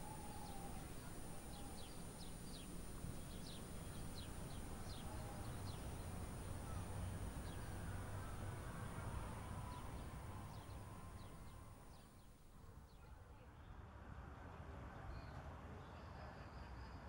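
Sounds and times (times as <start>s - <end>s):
small birds chirping: 0.0s - 13.1s
low steady background rumble: 0.0s - 16.3s.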